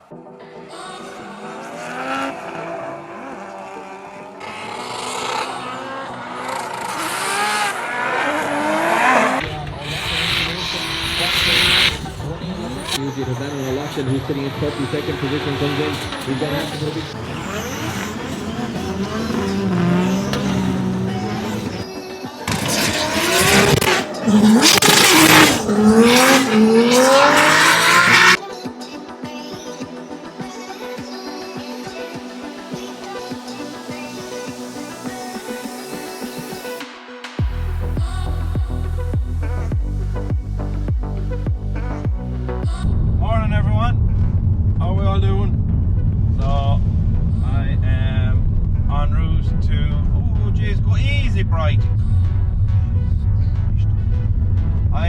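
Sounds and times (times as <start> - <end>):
car engines revving: 0.8 - 28.4
tyres screeching: 22.5 - 28.4.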